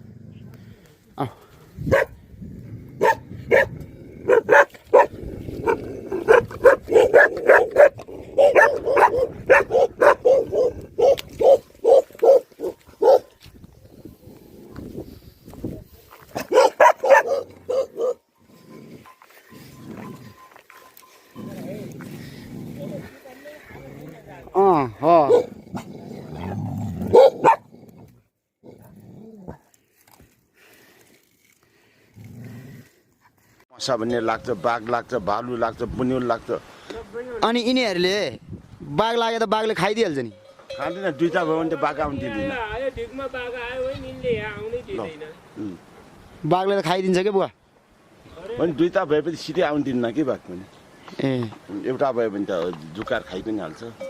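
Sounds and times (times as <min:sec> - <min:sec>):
dog barking: 0:01.9 - 0:02.2, 0:03.0 - 0:13.3, 0:16.4 - 0:18.2, 0:25.3 - 0:25.5, 0:27.1 - 0:27.7
dog growling: 0:02.4 - 0:11.1, 0:21.4 - 0:29.7.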